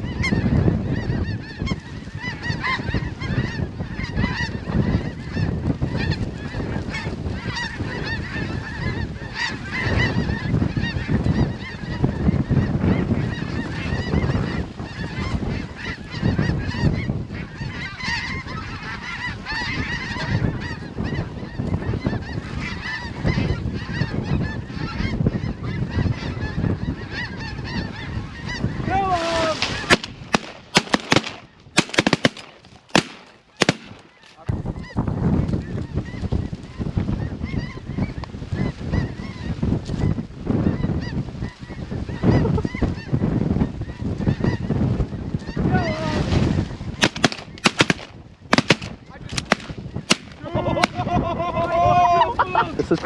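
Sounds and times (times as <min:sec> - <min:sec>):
flock of geese honking: 0:00.0 - 0:53.0
shotgun shots: 0:29.9 - 0:34.1, 0:47.0 - 0:51.0.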